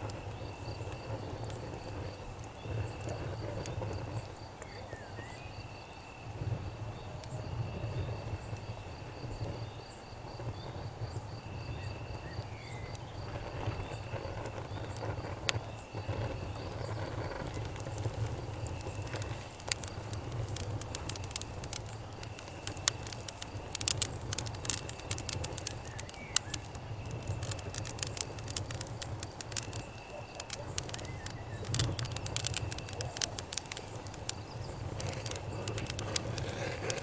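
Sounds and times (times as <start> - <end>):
crickets chirping: 0.0 - 37.0
insect buzzing: 0.1 - 37.0
campfire crackling and popping: 12.8 - 37.0.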